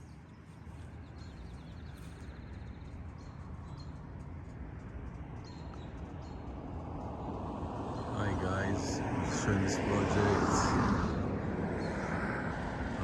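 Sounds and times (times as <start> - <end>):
small birds chirping and trilling: 0.0 - 10.4
low outdoor rumble: 0.0 - 13.0.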